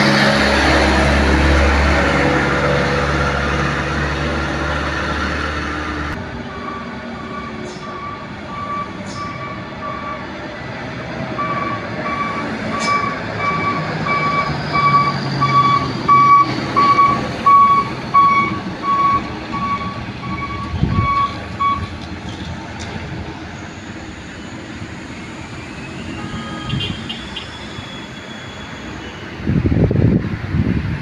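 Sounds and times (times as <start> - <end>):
diesel truck engine running: 0.0 - 31.0
truck reversing beeper: 4.8 - 22.0, 23.5 - 29.4.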